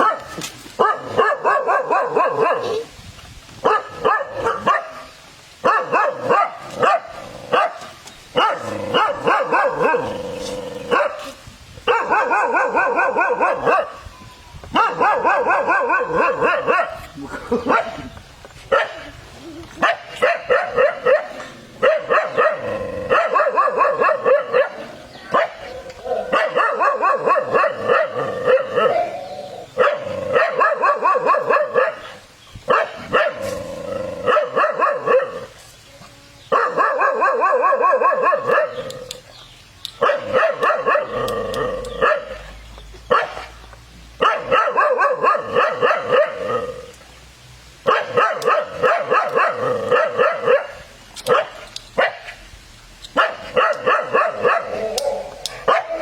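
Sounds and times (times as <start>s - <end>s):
dog barking: 0.0s - 2.9s, 3.6s - 10.1s, 10.9s - 11.3s, 11.9s - 14.0s, 14.8s - 18.0s, 18.7s - 19.1s, 19.8s - 29.2s, 29.8s - 32.1s, 32.7s - 33.5s, 34.3s - 35.5s, 36.5s - 38.8s, 40.0s - 41.2s, 42.0s - 42.5s, 43.1s - 43.5s, 44.2s - 46.7s, 47.8s - 52.4s, 53.2s - 56.0s.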